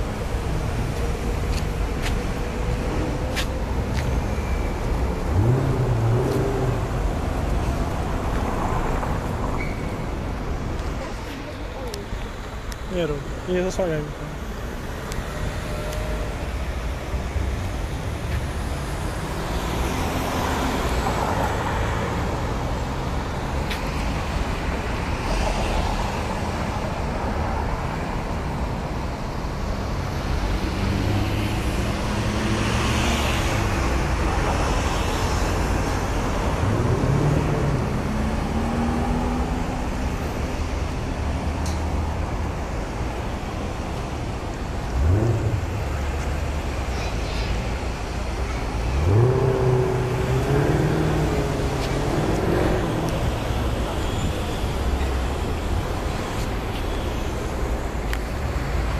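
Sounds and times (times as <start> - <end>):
car engine revving: 5.1 - 7.5, 48.8 - 53.9.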